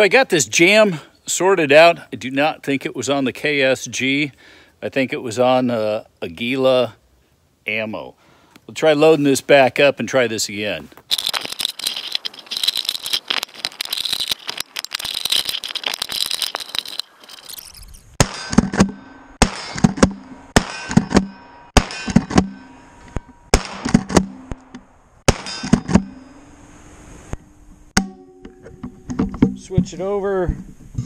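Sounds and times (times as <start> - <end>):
shotgun loading clicks and rattles: 11.0 - 18.0
shotgun shots: 18.2 - 22.6, 23.5 - 24.5, 25.3 - 26.0
steel target ringing: 18.2 - 23.6, 28.0 - 29.0.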